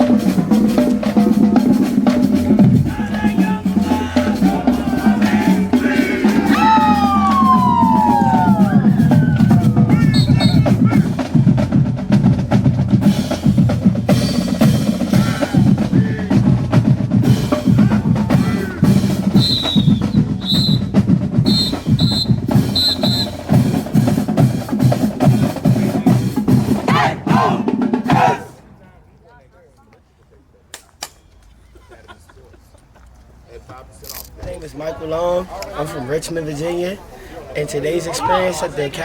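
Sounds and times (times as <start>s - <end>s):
marching drums cadence: 0.0s - 29.4s.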